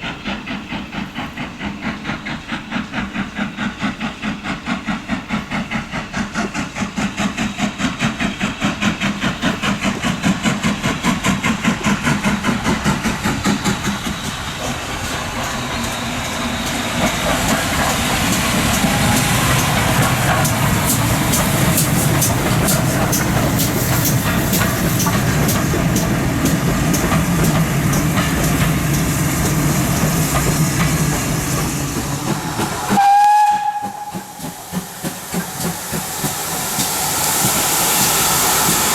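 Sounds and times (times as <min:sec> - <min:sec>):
hiss of steam: 0:00.0 - 0:38.9
rail noise: 0:00.0 - 0:38.9
steam locomotive exhaust beats: 0:00.0 - 0:38.9
steam whistle blast: 0:32.9 - 0:34.6.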